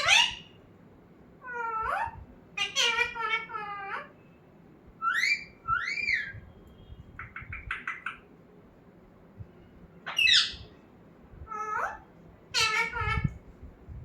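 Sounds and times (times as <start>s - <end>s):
parrot squawking: 0.0s - 0.6s, 1.4s - 4.2s, 5.0s - 6.4s, 7.2s - 8.2s, 10.1s - 10.7s, 11.5s - 13.4s.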